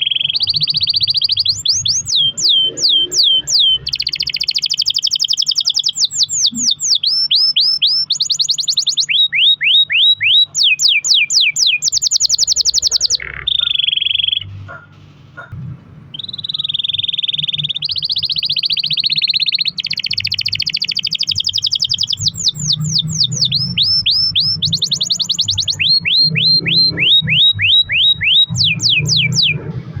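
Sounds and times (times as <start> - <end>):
canary singing trills: 0.0 - 30.0
low hum: 11.8 - 30.0.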